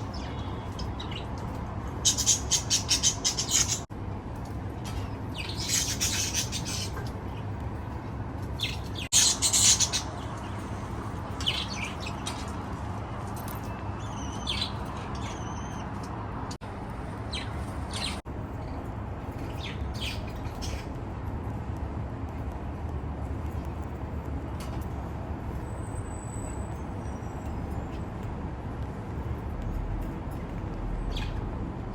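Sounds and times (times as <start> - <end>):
budgie chicks chirping: 1.9 - 3.9, 5.4 - 7.3, 8.6 - 12.6.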